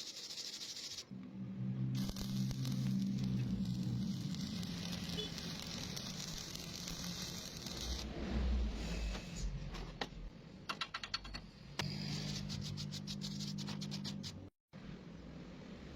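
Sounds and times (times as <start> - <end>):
welding arc crackling and hissing: 0.0 - 1.1, 2.0 - 8.1.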